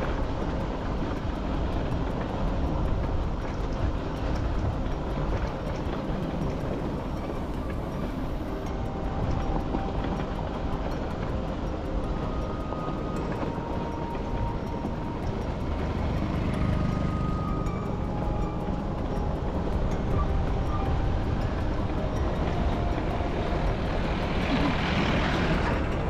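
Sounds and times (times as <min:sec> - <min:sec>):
vehicle road and wind rumble: 0:00.0 - 0:26.0.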